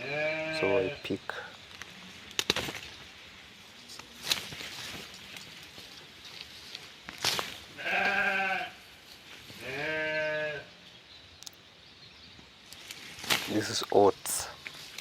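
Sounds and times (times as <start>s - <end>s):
sheep bleating: 0.0s - 1.0s, 7.8s - 8.8s, 9.6s - 10.7s.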